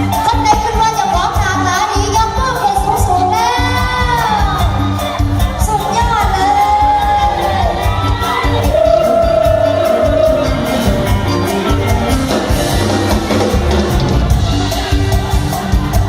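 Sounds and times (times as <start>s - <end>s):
heavy bass beat: 0.0s - 16.0s
live band music over sound system: 0.0s - 16.0s
person singing: 5.8s - 11.7s.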